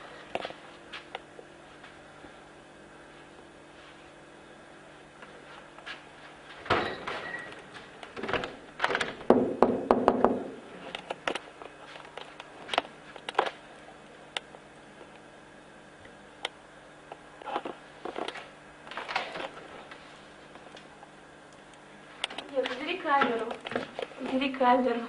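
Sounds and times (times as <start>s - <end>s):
door knocks and thuds: 9.2s - 10.6s.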